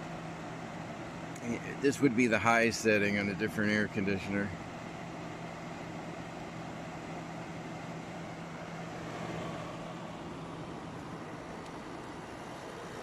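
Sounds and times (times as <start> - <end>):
air conditioner fan rushing: 0.0 - 13.0
low hum: 4.5 - 13.0.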